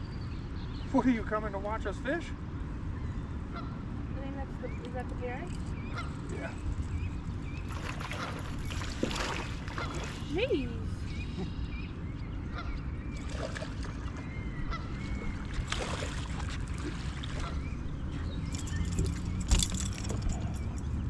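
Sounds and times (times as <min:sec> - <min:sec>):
steady low hum: 0:00.0 - 0:21.0
geese honking and peeping: 0:14.6 - 0:15.4.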